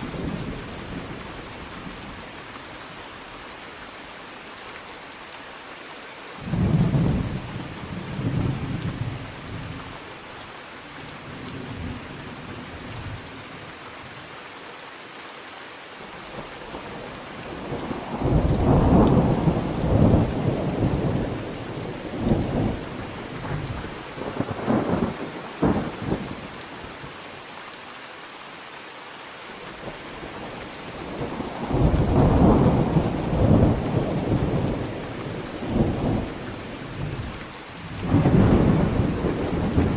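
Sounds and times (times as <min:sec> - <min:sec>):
steady rain: 0:00.0 - 0:39.9
thunder rumbling: 0:17.5 - 0:26.4, 0:31.0 - 0:39.9.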